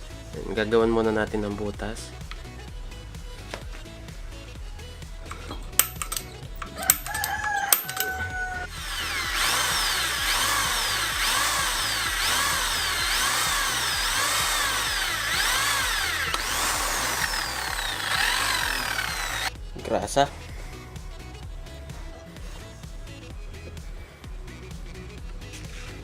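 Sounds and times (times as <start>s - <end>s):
electric drill whining: 5.8s - 19.5s.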